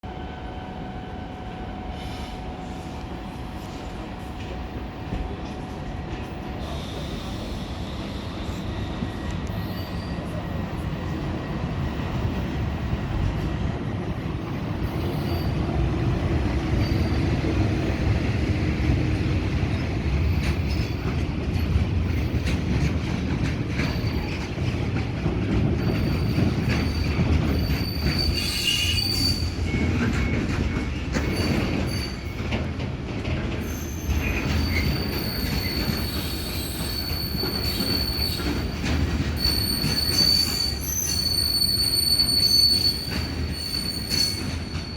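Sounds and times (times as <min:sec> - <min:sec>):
freight train rumbling past: 0:00.0 - 0:44.9
high wheel squeals: 0:06.6 - 0:11.2, 0:25.8 - 0:32.5, 0:33.6 - 0:44.9.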